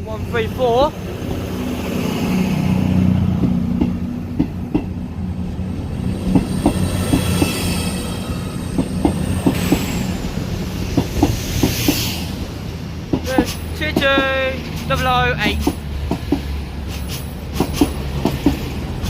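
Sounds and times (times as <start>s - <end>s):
diesel train engines passing: 0.0s - 19.0s
wheels clicking over rail joints: 13.1s - 19.0s.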